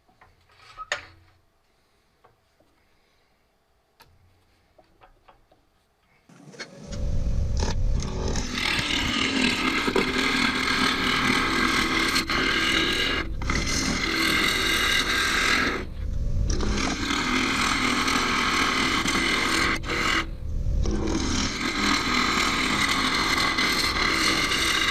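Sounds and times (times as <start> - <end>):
gouge cutting wood on lathe: 8.0 - 24.9.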